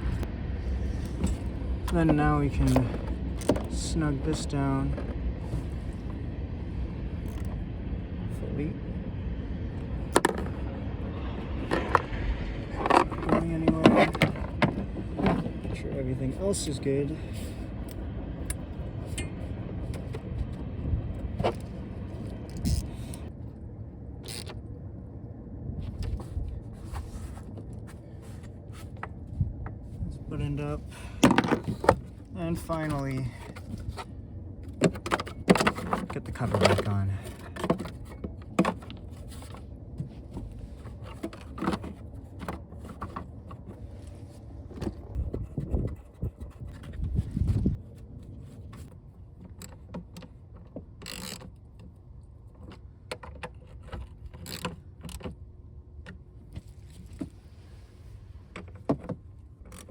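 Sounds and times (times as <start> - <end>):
low rumble: 0.0 - 34.8
light clicks and knocks of parts: 48.6 - 57.4.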